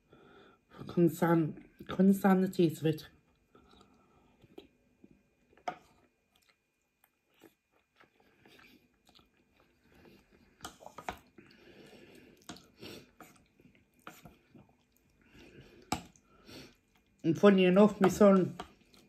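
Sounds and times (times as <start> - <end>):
chewing and mouth sounds: 3.3 - 17.2, 18.6 - 19.0.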